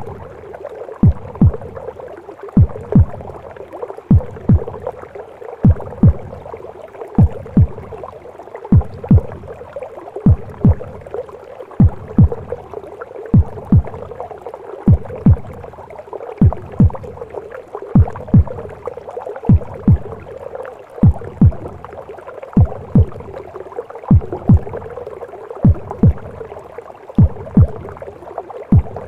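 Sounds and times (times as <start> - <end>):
heartbeat thumps: 0.0 - 0.4, 1.0 - 1.9, 2.5 - 3.5, 4.1 - 5.0, 5.6 - 6.5, 7.2 - 8.1, 8.7 - 9.6, 10.2 - 11.2, 11.8 - 14.2, 14.9 - 15.8, 16.4 - 17.3, 18.0 - 18.8, 19.5 - 20.4, 21.0 - 21.9, 22.6 - 23.4, 24.1 - 25.0, 25.6 - 26.5, 27.2 - 28.0, 28.7 - 29.0.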